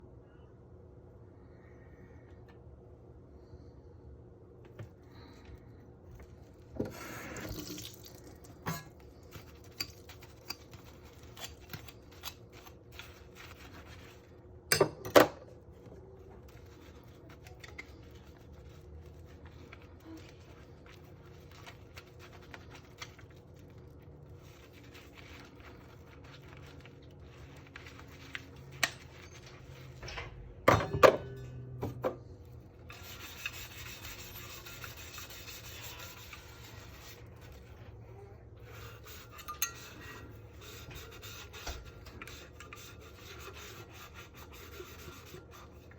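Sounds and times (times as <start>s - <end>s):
faint steady hum: 0.0s - 45.9s
dishes clinking in a sink: 8.6s - 9.0s, 14.7s - 15.4s, 30.0s - 32.2s, 39.3s - 40.2s.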